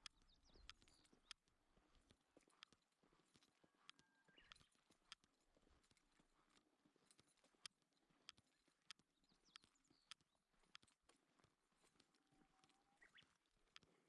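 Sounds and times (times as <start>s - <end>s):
faint sharp clicks: 0.0s - 1.5s, 3.4s - 5.3s, 5.9s - 14.0s.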